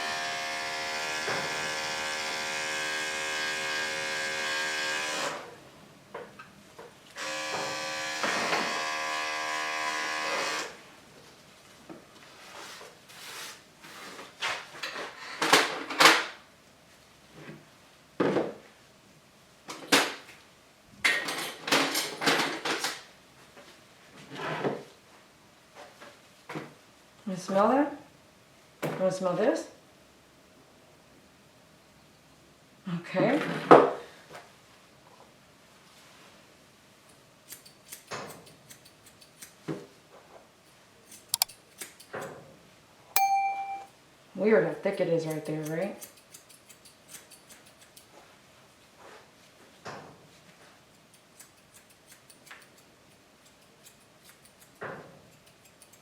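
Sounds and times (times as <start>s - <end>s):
scissors snipping hair: 37.4s - 39.6s, 40.6s - 42.4s, 45.0s - 48.1s, 50.9s - 56.0s.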